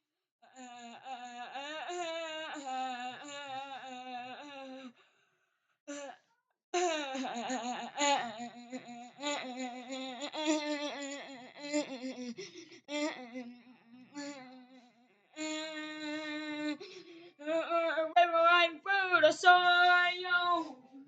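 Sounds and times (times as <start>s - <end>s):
person humming a melody: 6.8s - 14.7s.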